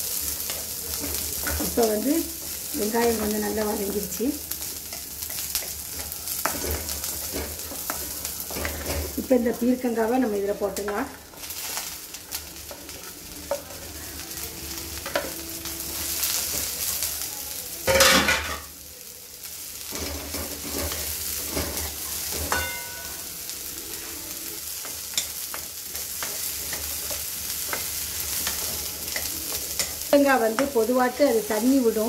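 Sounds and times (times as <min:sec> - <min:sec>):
vegetables sizzling in hot oil: 0:00.0 - 0:32.0
wooden spatula scraping pan: 0:19.9 - 0:22.6.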